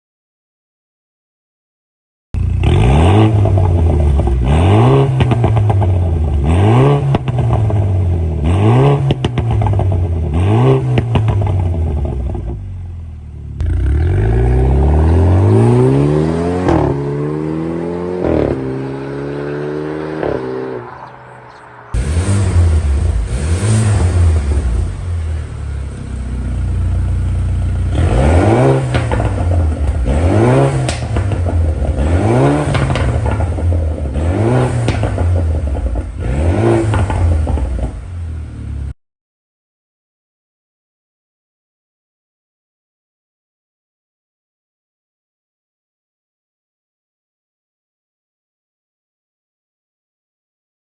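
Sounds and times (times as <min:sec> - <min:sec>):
car engine revving: 0:02.4 - 0:38.9
car accelerating through upshifts: 0:13.6 - 0:25.0, 0:27.9 - 0:38.0.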